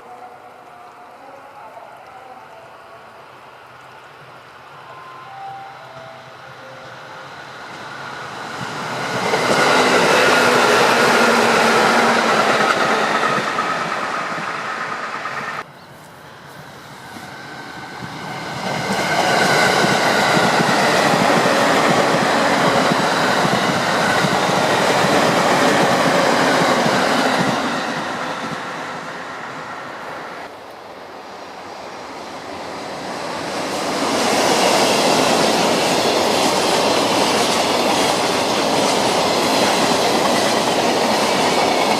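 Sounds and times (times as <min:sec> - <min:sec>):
train wheels rumbling on rails: 0:07.6 - 0:15.7, 0:16.4 - 0:30.5, 0:32.0 - 0:41.9.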